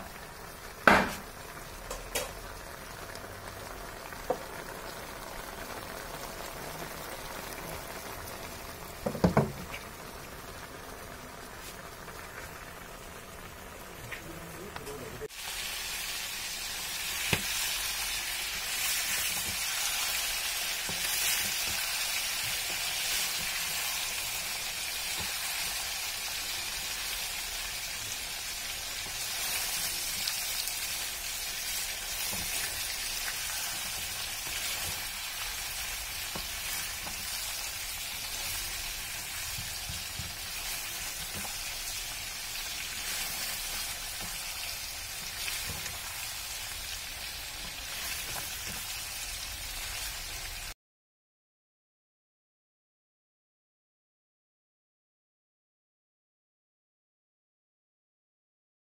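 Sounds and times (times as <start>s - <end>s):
meat sizzling in a wok: 0.0s - 14.1s, 15.2s - 50.8s
wooden spatula knocking on pan: 9.0s - 9.7s.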